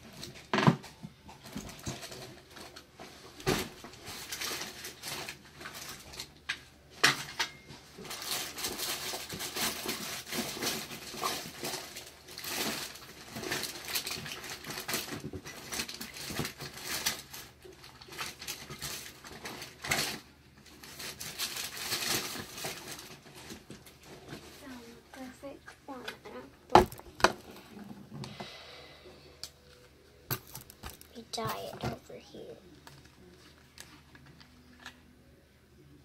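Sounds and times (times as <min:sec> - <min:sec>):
rustling and crackling: 0:00.0 - 0:28.3.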